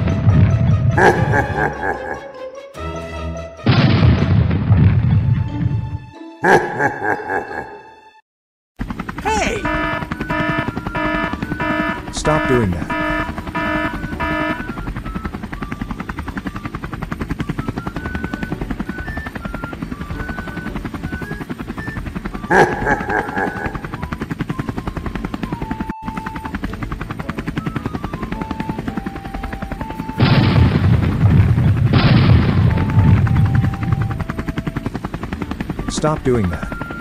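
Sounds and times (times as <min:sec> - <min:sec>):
toy helicopter rotor chop: 0:08.8 - 0:30.7
beeping tune: 0:09.3 - 0:22.8, 0:32.5 - 0:35.0, 0:35.8 - 0:37.0.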